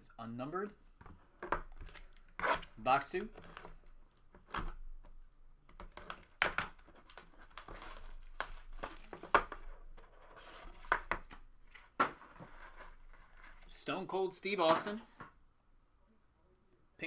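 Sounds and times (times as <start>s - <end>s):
packaging torn and crinkled: 5.9s - 9.3s.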